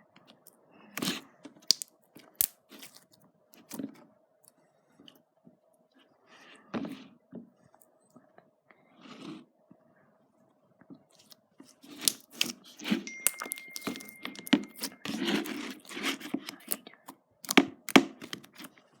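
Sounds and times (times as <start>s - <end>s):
slime squished by hand: 0.9s - 3.1s, 11.8s - 16.8s
sharp slime pops: 1.6s - 2.6s.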